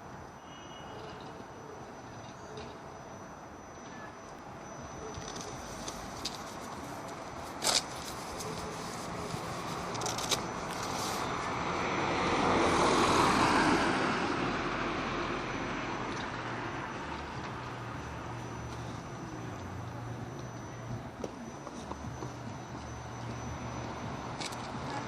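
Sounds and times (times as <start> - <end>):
vehicle passing: 5.5 - 21.2.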